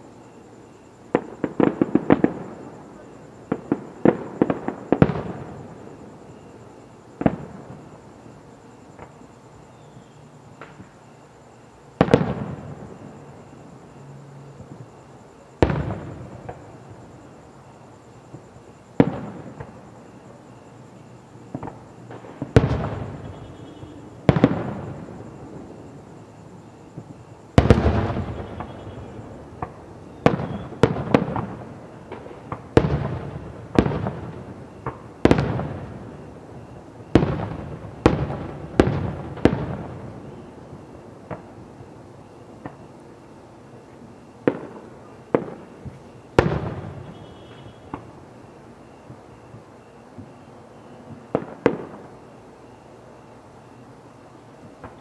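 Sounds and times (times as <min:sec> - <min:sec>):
fireworks crackles and pops: 0:01.0 - 0:09.3, 0:18.2 - 0:20.5, 0:21.4 - 0:25.9, 0:26.9 - 0:43.2, 0:43.8 - 0:52.6, 0:54.5 - 0:55.0.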